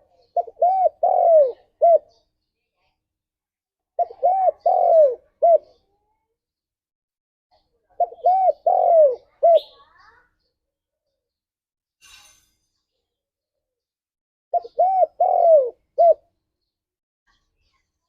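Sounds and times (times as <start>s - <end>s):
dove cooing: 0.3s - 2.2s, 4.0s - 5.8s, 8.0s - 9.7s, 14.5s - 16.2s.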